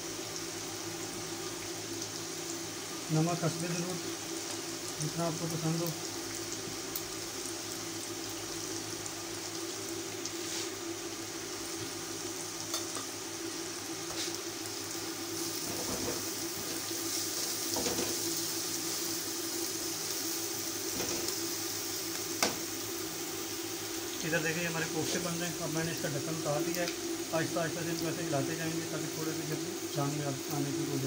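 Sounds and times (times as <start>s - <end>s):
sauce sizzling in hot oil: 0.0s - 31.0s
sharp tap on pan: 22.4s - 22.6s.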